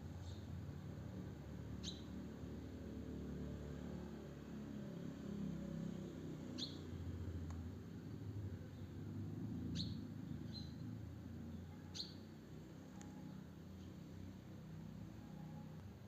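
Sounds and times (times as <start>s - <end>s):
small bird chirping: 1.8s - 2.2s, 6.5s - 7.0s, 9.6s - 10.9s, 11.5s - 14.1s.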